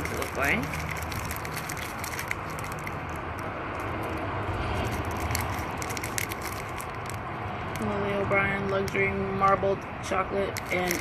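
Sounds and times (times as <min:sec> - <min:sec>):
chocolate bar wrappers crinkling: 0:00.0 - 0:07.8, 0:10.5 - 0:11.0
low background rumble: 0:00.0 - 0:11.0.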